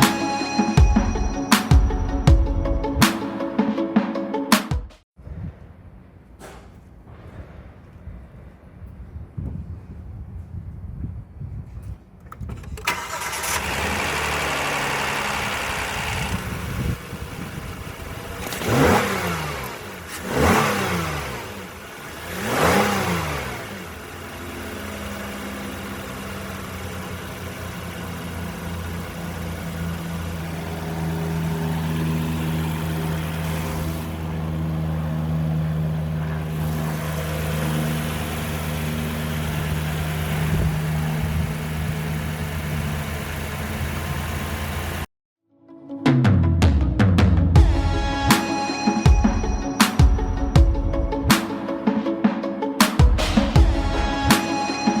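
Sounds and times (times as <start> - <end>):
car engine starting and revving: 12.3 - 45.1.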